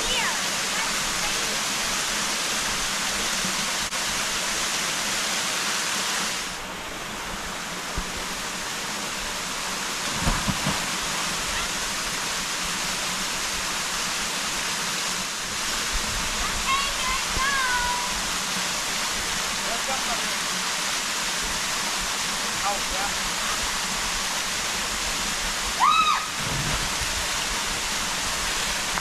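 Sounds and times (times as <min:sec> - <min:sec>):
waterfall rushing: 0:00.0 - 0:29.0
low thumps: 0:10.1 - 0:11.2.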